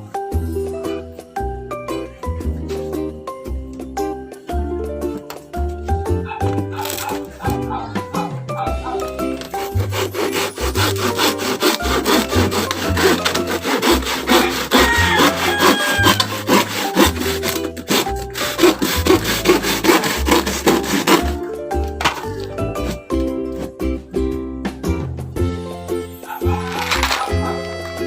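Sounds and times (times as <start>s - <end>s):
saw cutting through wood: 8.7s - 21.5s, 26.4s - 28.0s.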